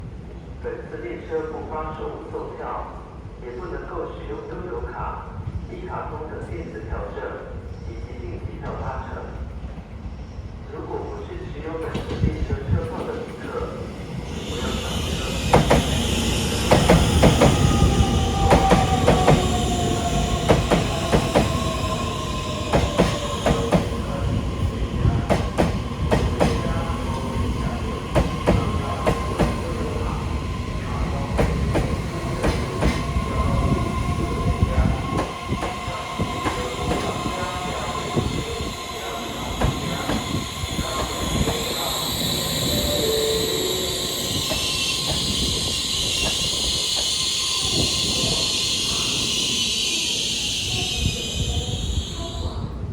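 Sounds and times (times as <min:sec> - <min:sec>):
train rumble: 0:05.0 - 0:52.9
train motor whine: 0:30.8 - 0:52.4.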